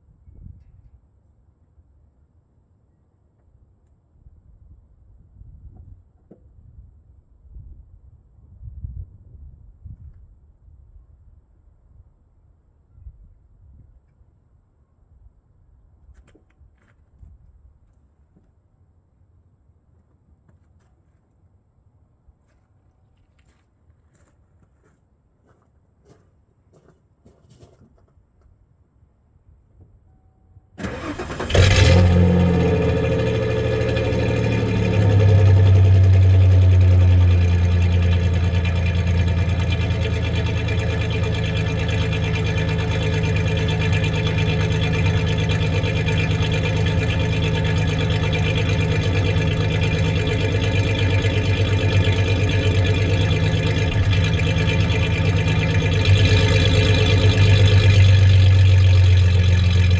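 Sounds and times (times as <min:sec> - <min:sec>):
engine cranking and starting: 0:30.8 - 0:59.9
misfiring engine idling: 0:30.8 - 0:59.9.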